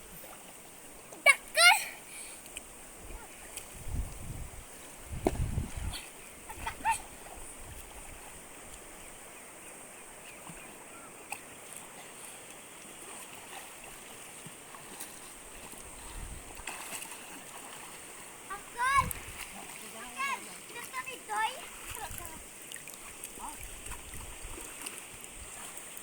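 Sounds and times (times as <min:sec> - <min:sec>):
flowing water: 0:00.0 - 0:26.0
splashes and thuds: 0:05.0 - 0:07.4, 0:13.1 - 0:25.9.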